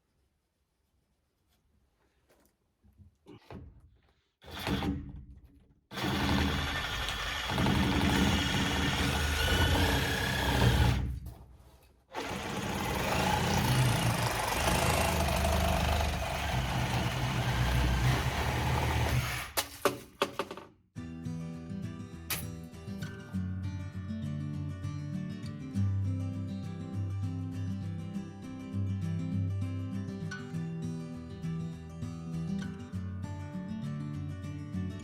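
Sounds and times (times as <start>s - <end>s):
handheld power tool running: 5.9s - 11.1s, 12.2s - 19.6s.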